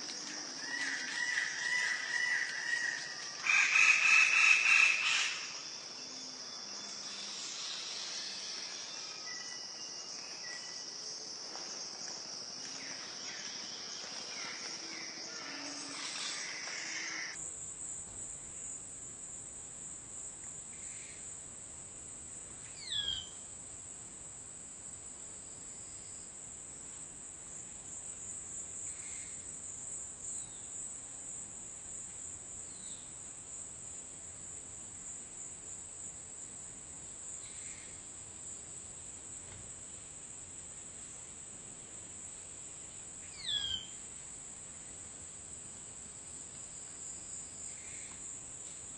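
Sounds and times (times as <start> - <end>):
high-pitched insect chorus: 0.0 - 21.4, 22.3 - 23.5, 27.5 - 41.2, 41.9 - 48.9
sweeping bird call: 13.4 - 17.4.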